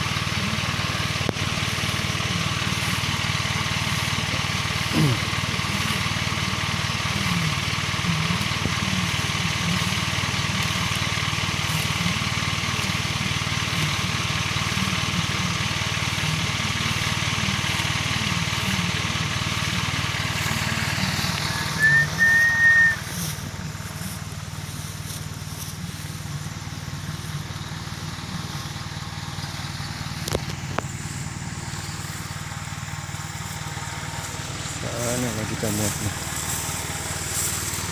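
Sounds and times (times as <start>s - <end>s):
truck engine running: 0.0s - 37.9s
high whistle-like squeal: 21.5s - 23.1s.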